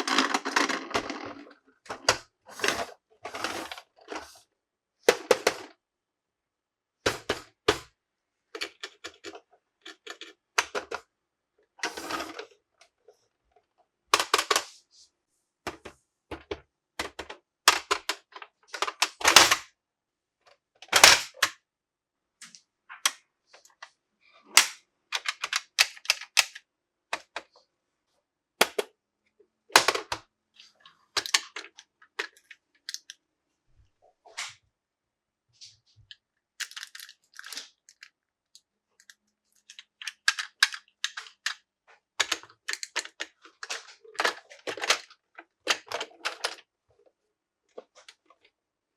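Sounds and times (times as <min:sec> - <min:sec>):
plastic parts clicking and tapping: 0:08.5 - 0:11.0, 0:14.2 - 0:14.7, 0:15.7 - 0:19.7, 0:20.5 - 0:21.6, 0:24.5 - 0:27.6, 0:28.6 - 0:28.9, 0:29.7 - 0:30.2, 0:30.8 - 0:33.2, 0:36.1 - 0:46.7.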